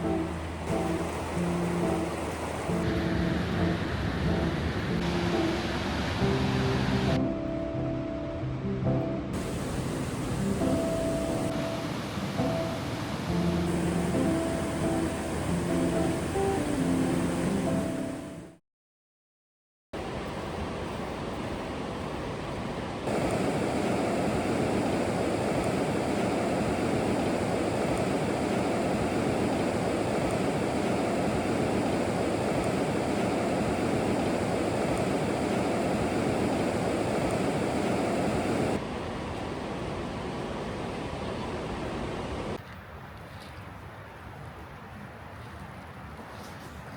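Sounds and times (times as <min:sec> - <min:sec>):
fast-flowing creek water rushing: 0:00.0 - 0:03.9, 0:09.4 - 0:18.0, 0:23.1 - 0:38.8.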